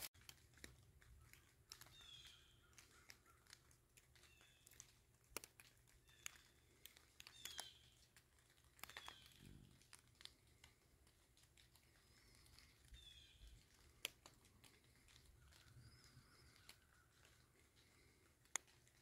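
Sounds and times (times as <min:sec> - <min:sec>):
faint clicks and crackles: 0:00.0 - 0:19.0
small bird chirping: 0:01.2 - 0:09.8, 0:11.9 - 0:18.2.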